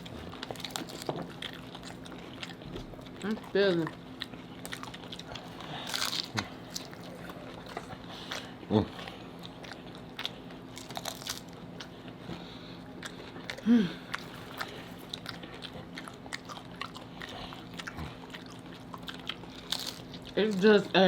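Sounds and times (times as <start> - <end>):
crunching crisp taco shells: 0.0 - 21.0
person humming: 13.6 - 14.0.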